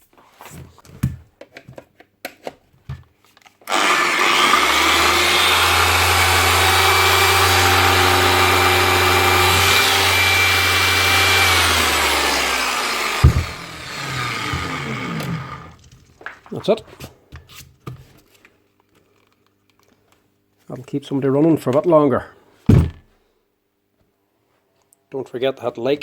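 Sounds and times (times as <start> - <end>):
electric polisher motor running: 3.7 - 15.8.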